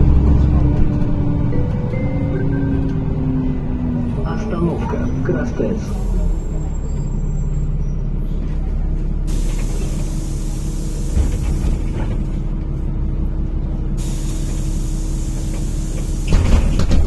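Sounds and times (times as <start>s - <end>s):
bus engine idling: 0.0s - 17.0s
air brake hiss: 9.3s - 11.6s, 14.0s - 16.5s.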